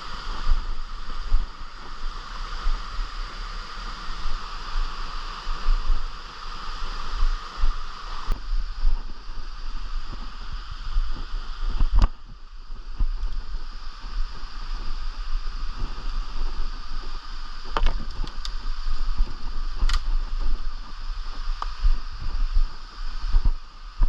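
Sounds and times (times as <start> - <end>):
low rumble on microphone: 0.0 - 24.0.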